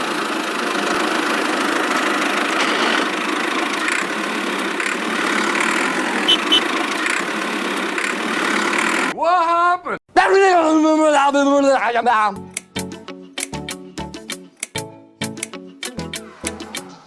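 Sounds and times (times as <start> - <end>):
engine running: 0.0 - 9.1.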